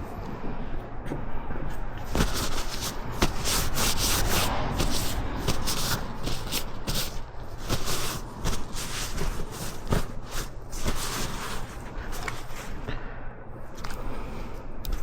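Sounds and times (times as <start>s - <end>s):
rubbing and scraping strokes: 2.0s - 12.9s.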